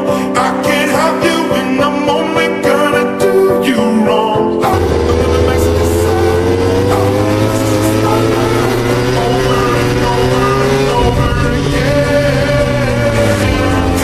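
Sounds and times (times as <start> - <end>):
background music: 0.0 - 14.0
motorcycle engines at high revs: 4.6 - 14.0.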